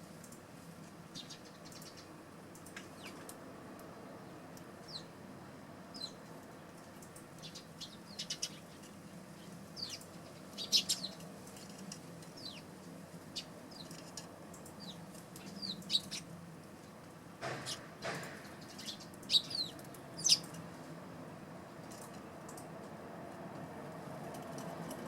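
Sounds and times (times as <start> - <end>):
sparrows chirping: 0.9 - 3.3, 4.1 - 5.2, 5.8 - 20.9.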